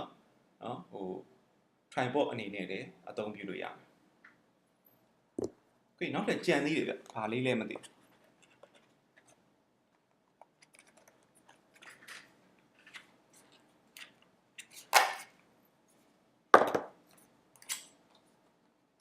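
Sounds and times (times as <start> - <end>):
packaging rustling and clicking: 10.4 - 15.3.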